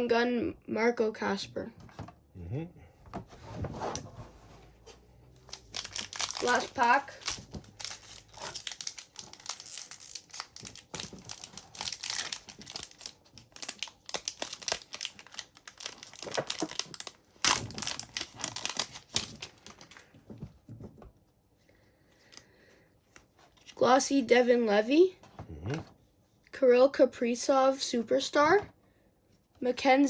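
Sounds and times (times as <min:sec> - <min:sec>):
cards shuffling: 0:05.4 - 0:20.0
foil wrapper tearing and crinkling: 0:05.5 - 0:20.0.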